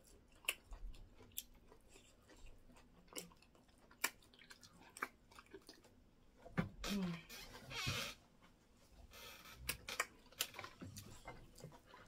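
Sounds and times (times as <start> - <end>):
wet chewing: 0.0 - 6.5, 9.7 - 12.0
lip smacks and clicks: 3.0 - 5.9.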